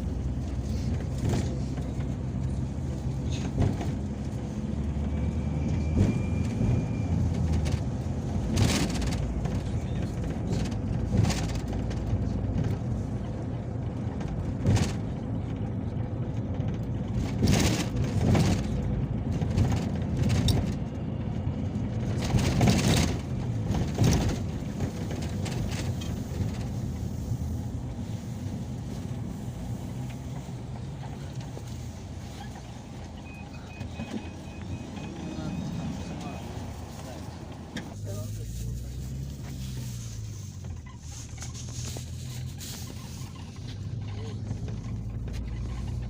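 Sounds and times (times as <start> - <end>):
vehicle engine and road rumble: 0.0 - 46.0
sharp knocks and rattles: 7.2 - 28.1.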